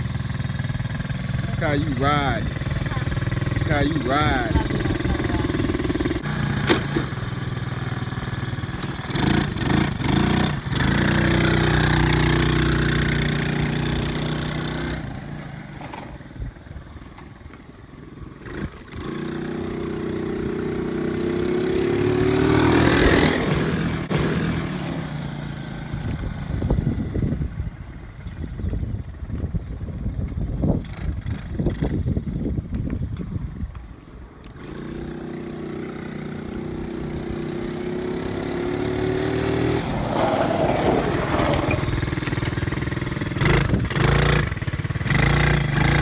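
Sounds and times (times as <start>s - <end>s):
dirt bike engine revving: 0.0s - 15.3s, 18.4s - 25.4s, 34.6s - 46.0s.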